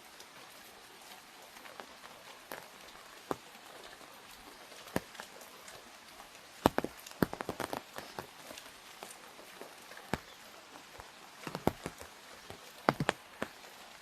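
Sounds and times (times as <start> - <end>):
rain pattering on umbrella: 0.0 - 14.0
sharp taps on umbrella: 2.4 - 3.5, 4.9 - 5.2, 6.6 - 13.7.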